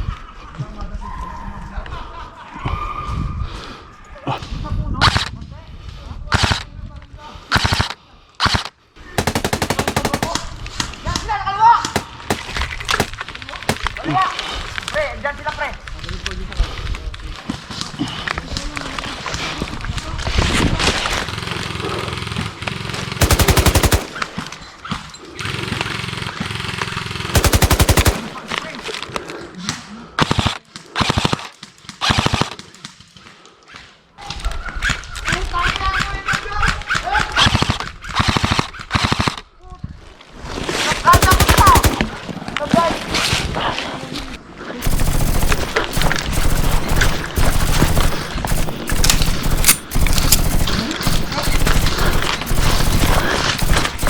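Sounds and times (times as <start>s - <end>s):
airsoft rifle bursts: 7.6s - 11.0s, 11.8s - 14.3s, 23.2s - 24.8s, 27.4s - 28.9s, 41.1s - 42.3s, 44.8s - 54.0s.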